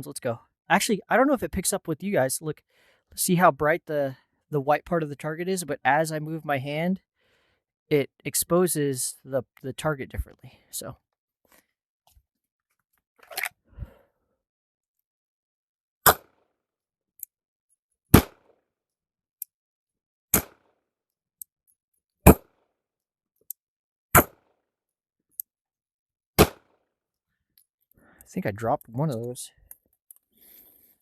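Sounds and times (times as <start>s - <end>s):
pistol shots: 26.4s - 26.7s.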